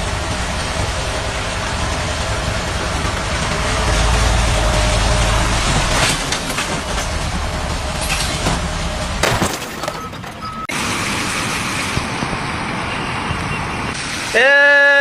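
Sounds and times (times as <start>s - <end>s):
deep rumble: 0.0s - 9.4s
heavy vehicle engine running: 0.0s - 14.4s.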